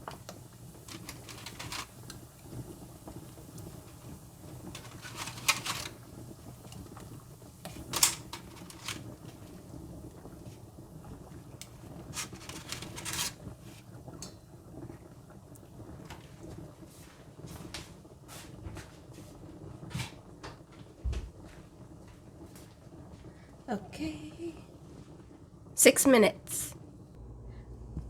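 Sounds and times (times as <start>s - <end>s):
kitchen clicks and knocks: 0.9s - 2.2s, 4.6s - 7.0s, 7.6s - 9.4s, 12.1s - 13.4s
steady low hum: 27.0s - 28.0s.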